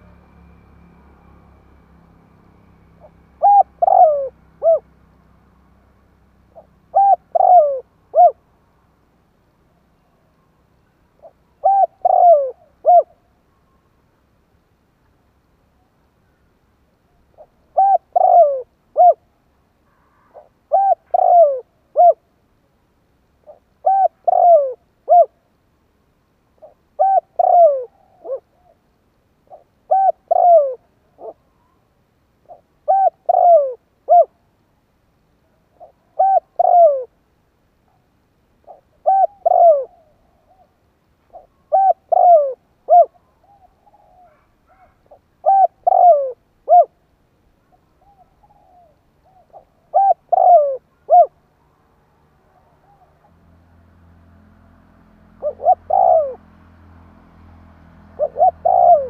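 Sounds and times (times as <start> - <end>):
dove cooing: 2.9 - 5.0, 6.5 - 8.5, 11.1 - 13.3, 17.1 - 19.3, 19.9 - 22.3, 23.4 - 25.4, 26.6 - 28.8, 29.4 - 31.8, 32.4 - 34.4, 35.4 - 37.2, 38.6 - 47.0, 47.7 - 53.4, 55.3 - 56.6, 58.0 - 59.0.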